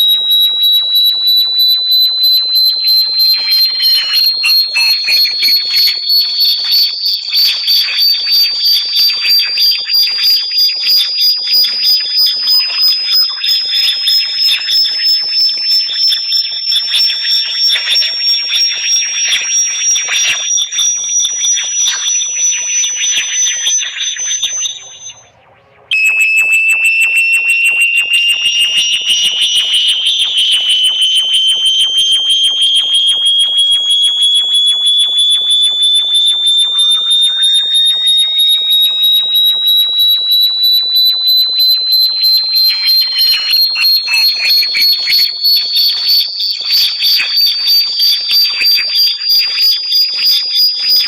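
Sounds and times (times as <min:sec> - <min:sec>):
lower electronic tone: 0:00.0 - 0:06.0, 0:21.5 - 0:46.1
high-pitched pulsing electronic tone: 0:00.0 - 0:51.0.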